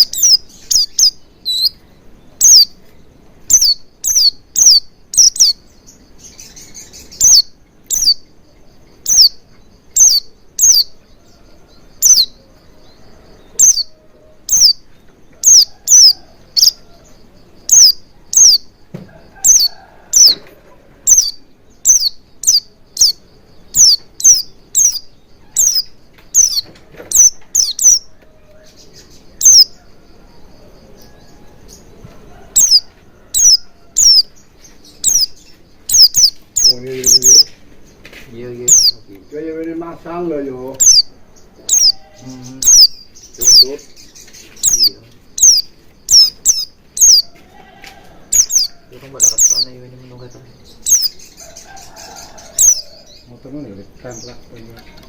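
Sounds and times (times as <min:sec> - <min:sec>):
bird chirping sharply: 0:00.0 - 0:11.0, 0:11.9 - 0:12.4, 0:13.4 - 0:14.8, 0:15.4 - 0:16.8, 0:17.6 - 0:18.7, 0:19.4 - 0:20.4, 0:21.1 - 0:28.1, 0:28.8 - 0:29.8, 0:32.6 - 0:37.6, 0:38.3 - 0:47.3, 0:48.3 - 0:53.4
faint high twittering: 0:00.0 - 0:55.0.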